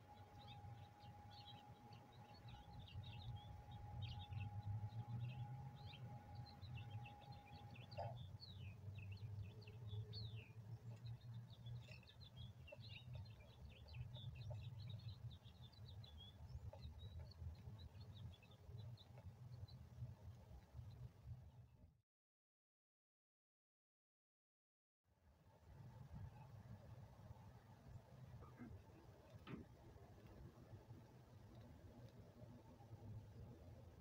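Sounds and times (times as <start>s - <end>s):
small birds chirping: 0.0s - 21.1s
low steady hum: 0.0s - 21.8s.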